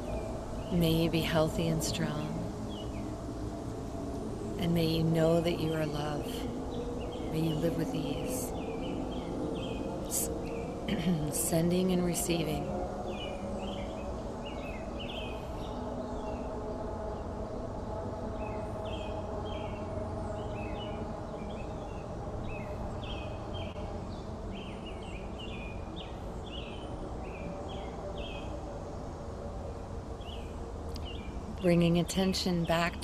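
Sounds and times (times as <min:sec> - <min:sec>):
low background hum: 0:00.0 - 0:33.0
small birds chirping: 0:04.6 - 0:16.6, 0:30.2 - 0:33.0.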